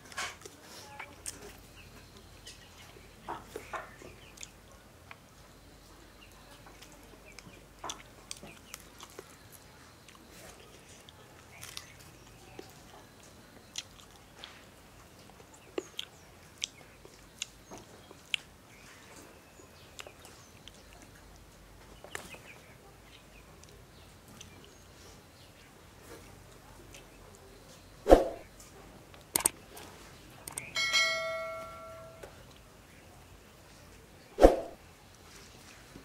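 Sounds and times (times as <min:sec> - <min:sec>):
faint steady background: 0:00.0 - 0:36.0
man chewing and crunching: 0:07.8 - 0:14.6.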